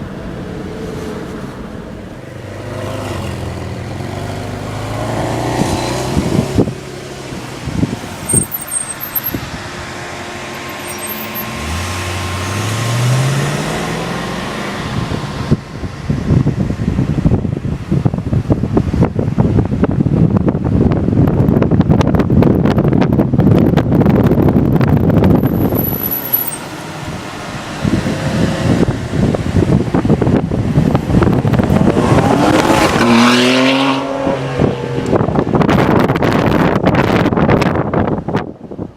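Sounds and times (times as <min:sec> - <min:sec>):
road noise: 0:00.0 - 0:38.9
car engine accelerating hard: 0:02.4 - 0:17.1, 0:24.0 - 0:37.9
car engine accelerating: 0:02.5 - 0:16.4
wind buffeting microphone: 0:05.2 - 0:08.4, 0:14.6 - 0:26.2, 0:26.8 - 0:38.9.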